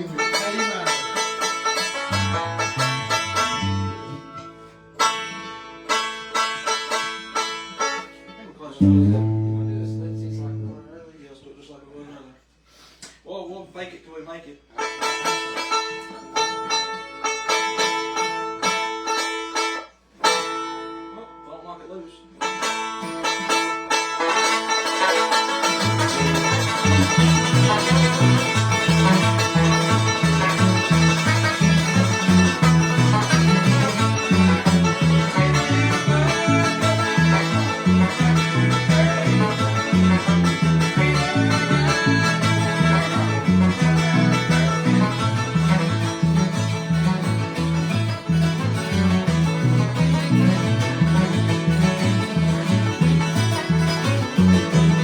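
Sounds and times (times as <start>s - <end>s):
banjo: 0.0s - 11.0s, 14.7s - 21.5s, 22.2s - 55.0s
guitar: 0.0s - 11.2s, 14.7s - 55.0s
bass line: 1.0s - 5.3s, 8.8s - 11.1s, 24.4s - 55.0s.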